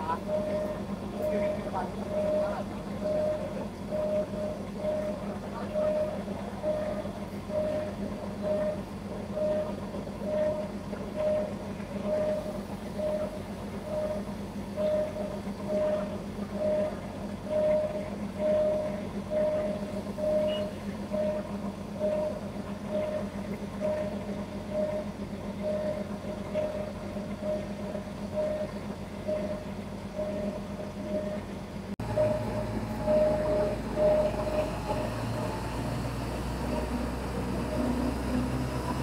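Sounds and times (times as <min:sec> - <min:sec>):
diesel train low hum: 0:00.0 - 0:39.0
train rolling rumble: 0:00.0 - 0:39.0
short repeating beep: 0:17.5 - 0:23.2.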